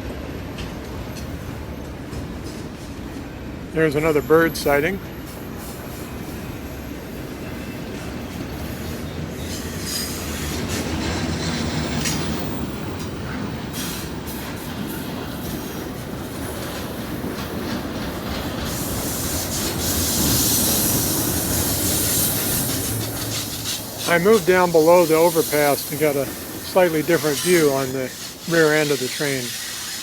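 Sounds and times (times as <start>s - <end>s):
train wheels squealing: 4.0s - 30.0s
steel wheels clattering on rails: 7.6s - 30.0s.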